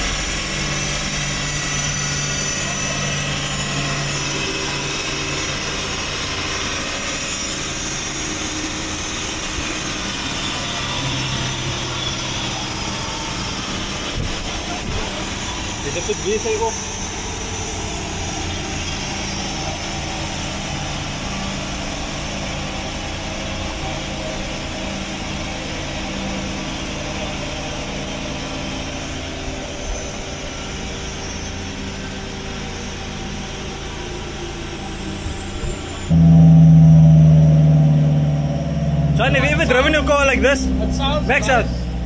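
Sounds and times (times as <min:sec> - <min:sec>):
car engine running: 0:00.0 - 0:42.0
loud engine: 0:00.0 - 0:42.0
thin high whine: 0:15.3 - 0:42.0.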